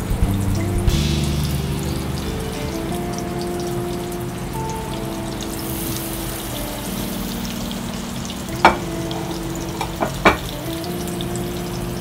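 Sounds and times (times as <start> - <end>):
meat sizzling in a pan: 1.0 - 12.0.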